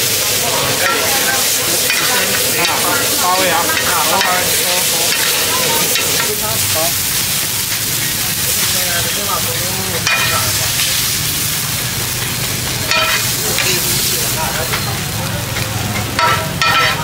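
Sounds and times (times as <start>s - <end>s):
food sizzling in a pan: 0.0s - 17.0s
metal spatula scraping a pan: 10.0s - 10.6s, 12.9s - 13.8s, 15.9s - 17.0s.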